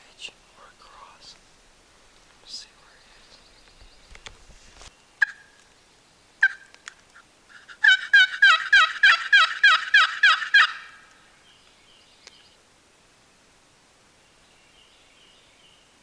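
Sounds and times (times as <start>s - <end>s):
turkey call yelps: 5.2s - 5.5s, 6.4s - 6.8s, 7.6s - 11.1s.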